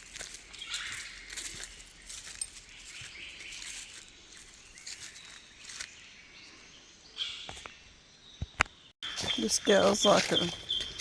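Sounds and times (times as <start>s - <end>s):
footsteps crunching through dry leaves: 0.0s - 6.2s, 9.1s - 11.0s
faint bird chirp: 0.5s - 11.0s.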